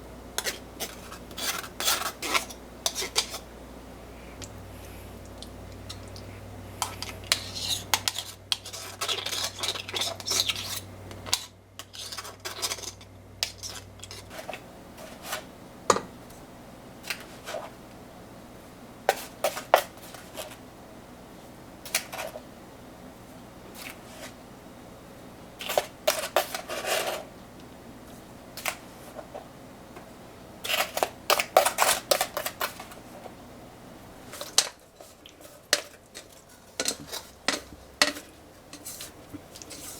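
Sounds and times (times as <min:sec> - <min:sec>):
utensils clinking against pots: 0:34.3 - 0:39.9.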